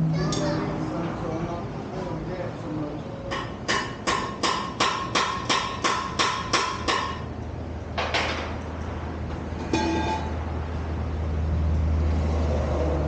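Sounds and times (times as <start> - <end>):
hammer striking metal: 3.3 - 7.3, 9.6 - 10.4.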